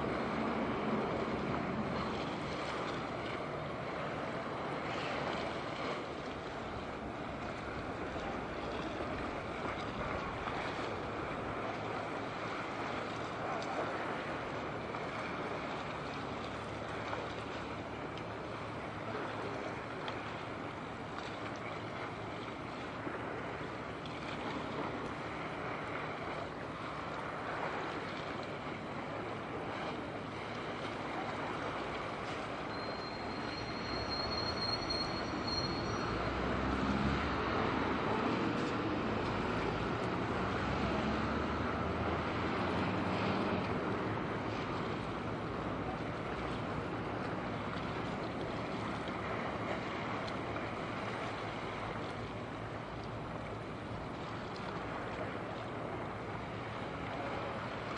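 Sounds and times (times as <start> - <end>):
steady outdoor noise: 0.0 - 57.9
thin high-pitched squeal: 32.7 - 36.2.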